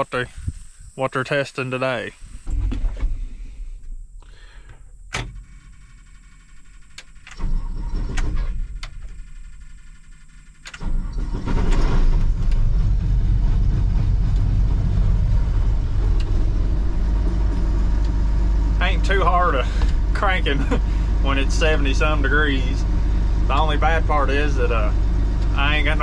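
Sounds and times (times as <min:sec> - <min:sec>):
diesel engine cranking and starting: 0:02.1 - 0:26.0.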